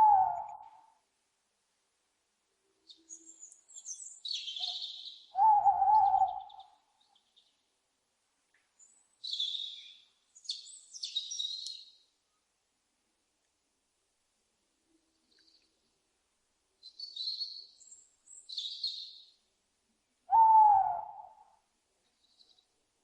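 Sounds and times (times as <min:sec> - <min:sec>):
owl hoot: 0:00.0 - 0:00.9, 0:04.6 - 0:06.7, 0:20.3 - 0:21.6.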